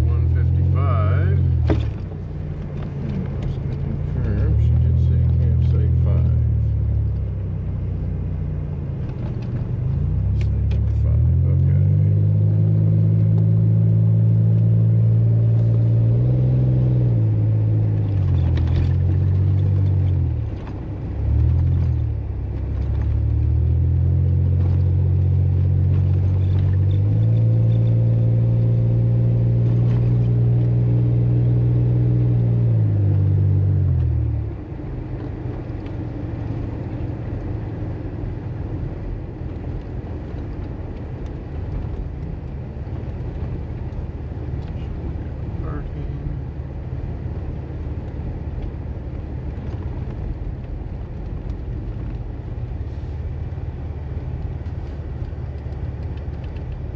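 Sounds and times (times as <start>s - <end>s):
vehicle engine revving under load: 9.1s - 34.6s.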